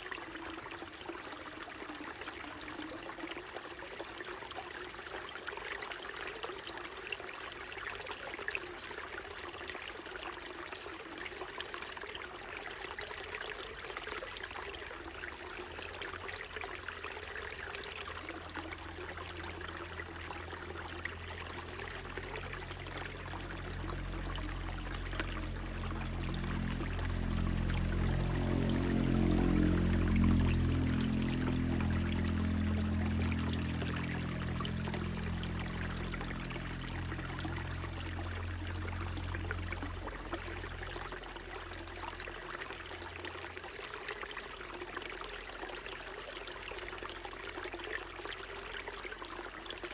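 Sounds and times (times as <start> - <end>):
stream trickling over rocks: 0.0 - 49.9
low steady drone: 17.8 - 43.3.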